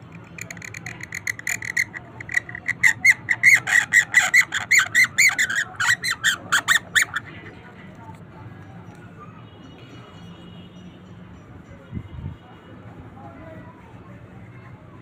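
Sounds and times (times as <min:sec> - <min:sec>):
bird high rapid chirps: 0:00.2 - 0:07.4.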